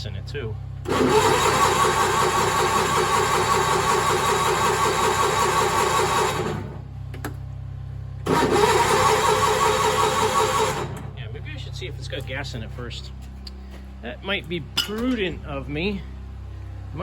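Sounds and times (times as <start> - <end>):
engine cranking with electric starter: 0.8 - 6.9, 8.2 - 11.2.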